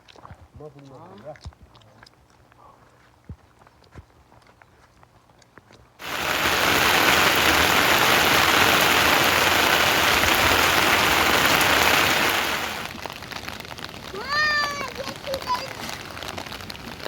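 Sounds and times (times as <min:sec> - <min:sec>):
heavy rain pouring: 0:06.0 - 0:17.0.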